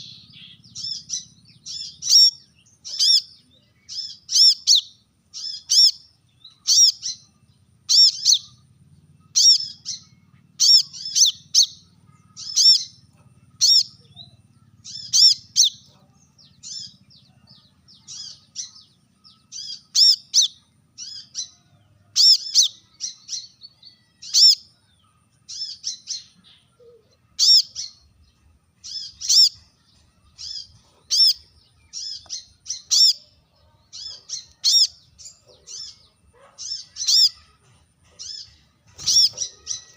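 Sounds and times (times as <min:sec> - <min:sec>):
bird giving sharp high calls: 0:00.0 - 0:07.3, 0:07.9 - 0:08.7, 0:09.3 - 0:13.0, 0:13.6 - 0:15.9, 0:19.5 - 0:21.6, 0:22.2 - 0:23.5, 0:25.5 - 0:28.0, 0:28.8 - 0:29.6, 0:30.4 - 0:33.3, 0:34.0 - 0:39.9.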